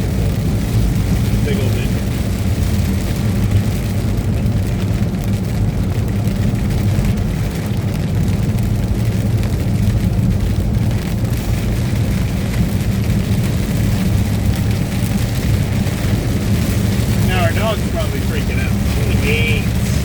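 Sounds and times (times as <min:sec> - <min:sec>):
road noise: 0:00.0 - 0:20.0
truck engine drone: 0:13.7 - 0:20.0.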